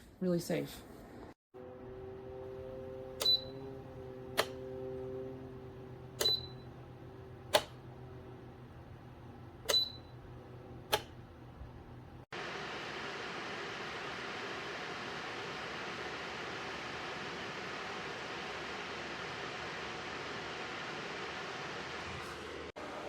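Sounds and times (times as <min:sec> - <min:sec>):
low hum: 0:01.6 - 0:12.3
safety switch clicking: 0:07.5 - 0:07.8, 0:10.9 - 0:11.2.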